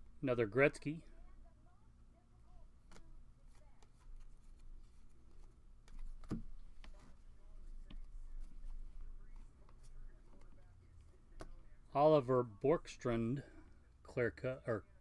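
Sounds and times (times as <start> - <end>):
trading cards clicking and rustling: 2.8 - 11.7.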